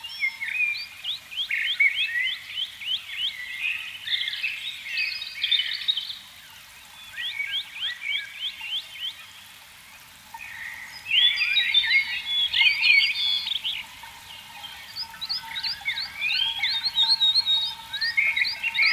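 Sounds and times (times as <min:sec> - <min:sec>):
warbling calls: 0:10.3 - 0:18.9.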